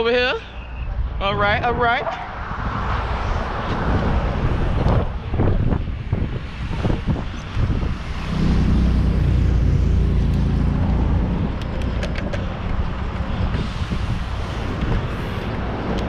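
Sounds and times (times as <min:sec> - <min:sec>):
wind rush on microphone: 0:00.0 - 0:16.0
vehicle engine humming: 0:02.1 - 0:16.0.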